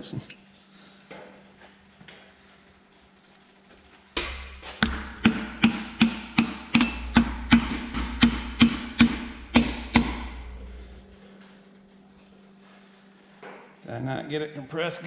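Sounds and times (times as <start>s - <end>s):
hammer handle tapping piston: 4.2s - 10.8s.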